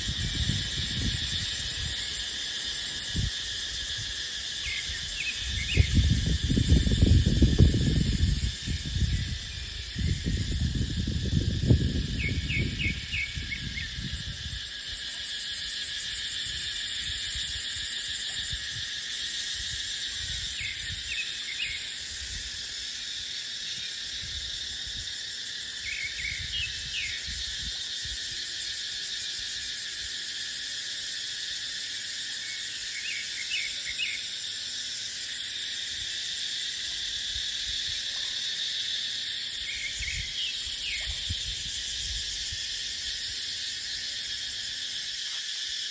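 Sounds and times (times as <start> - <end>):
wind on microphone: 0.0 - 2.2, 3.0 - 14.7, 39.8 - 43.3
cicadas buzzing: 0.0 - 45.9.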